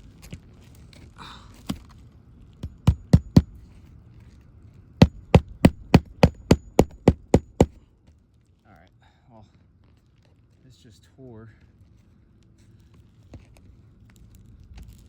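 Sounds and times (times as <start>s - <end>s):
hammer striking nails: 2.6s - 3.5s, 5.0s - 7.8s.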